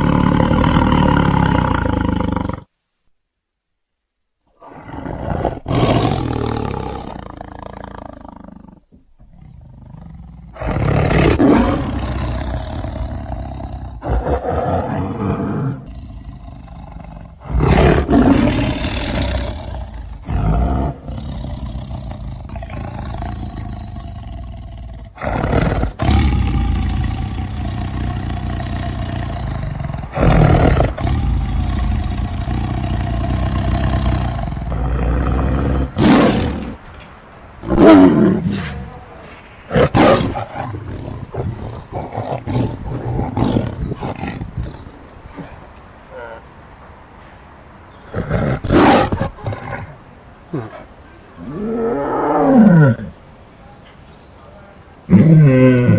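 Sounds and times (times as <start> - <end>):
tiger deep growling: 0.0 - 2.7, 4.5 - 46.5, 48.0 - 53.2, 55.0 - 55.9
tiger roaring: 0.0 - 2.7, 4.6 - 37.0, 37.6 - 46.5, 48.1 - 53.2, 55.1 - 55.9.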